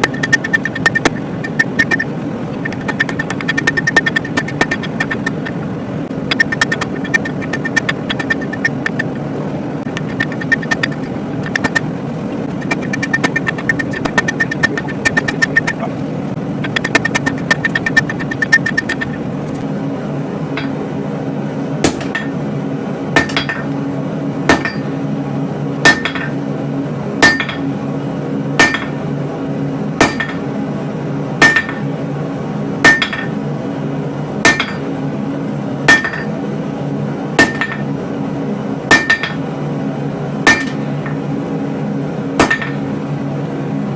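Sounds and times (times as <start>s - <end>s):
hammer striking steel on anvil: 0.0s - 2.0s, 2.6s - 5.5s, 6.3s - 9.1s, 20.6s - 20.8s, 21.8s - 22.4s, 23.2s - 23.8s, 24.5s - 25.0s, 25.8s - 26.4s, 27.2s - 27.8s, 28.6s - 29.0s, 30.0s - 30.5s, 31.4s - 31.9s, 32.9s - 33.4s, 34.5s - 35.0s, 35.9s - 36.4s, 37.4s - 37.9s, 38.9s - 39.5s, 40.5s - 41.2s, 42.4s - 42.9s
steady low drone: 0.0s - 43.9s.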